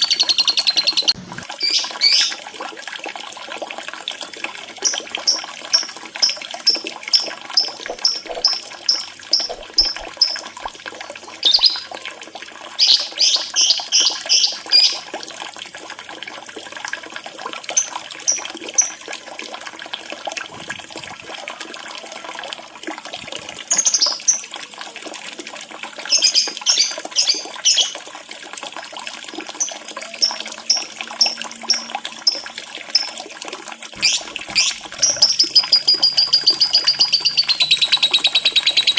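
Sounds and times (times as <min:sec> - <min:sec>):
shrill lovebird chirps: 0:00.0 - 0:02.4, 0:11.4 - 0:11.9, 0:34.0 - 0:38.9
trickling running water: 0:00.0 - 0:38.9.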